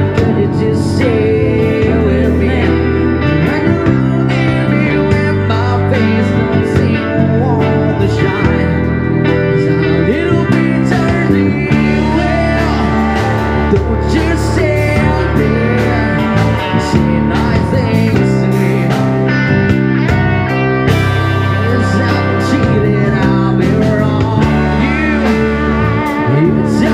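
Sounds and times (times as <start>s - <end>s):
bass guitar: 0.0s - 26.9s
electric guitar with string bends: 0.0s - 26.9s
steady drum beat: 0.0s - 26.9s.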